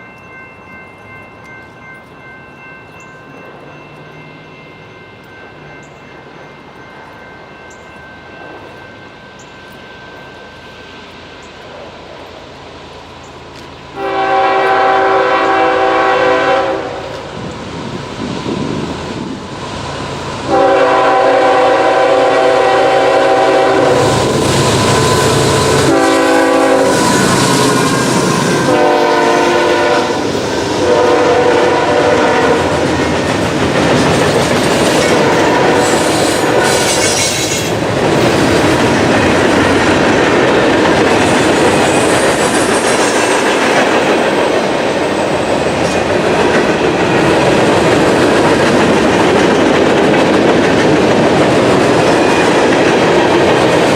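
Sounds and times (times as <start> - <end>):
train rumbling past: 0.0 - 53.9
train horn blasts: 13.9 - 17.2, 20.4 - 32.8.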